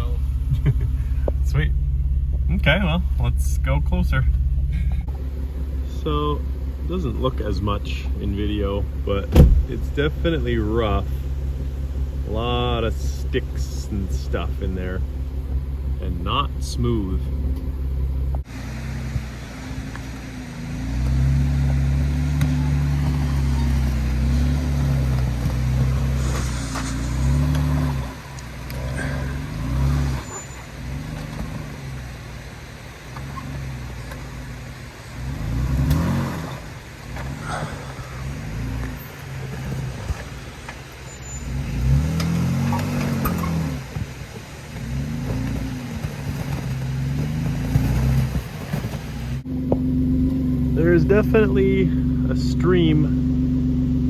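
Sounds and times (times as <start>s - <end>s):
engine revving under load: 0.0s - 54.0s.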